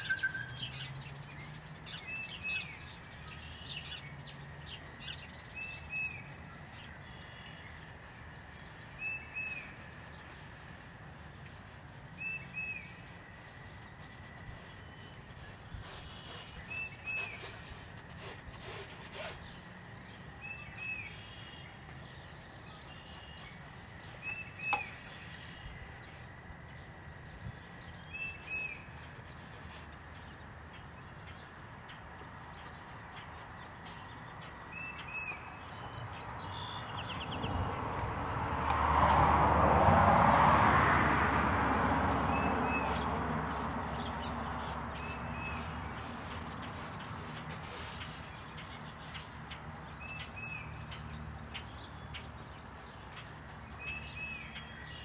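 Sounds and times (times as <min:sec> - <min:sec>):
bird double chirp: 0:00.0 - 0:00.9
low outdoor background hum: 0:00.0 - 0:55.0.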